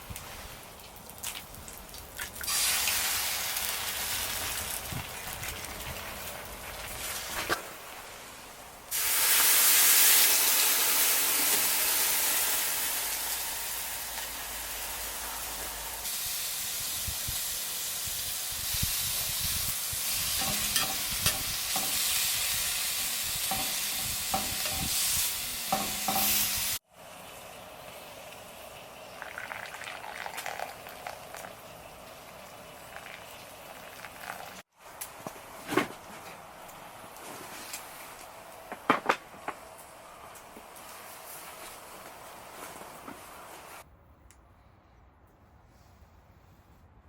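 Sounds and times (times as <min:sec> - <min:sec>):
food sizzling in a pan: 0:02.5 - 0:05.4, 0:08.9 - 0:34.7.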